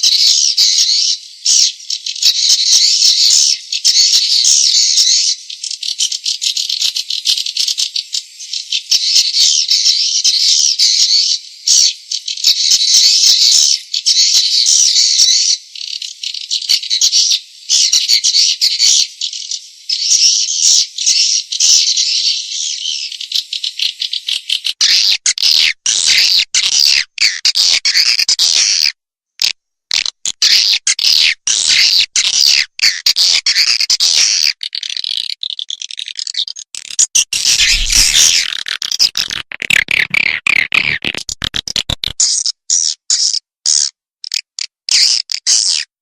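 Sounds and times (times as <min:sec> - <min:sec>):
high twittering chirps of swiftlets: 0:00.0 - 0:27.0, 0:30.5 - 0:39.3
swiftlets twittering and chirping: 0:30.3 - 0:44.4.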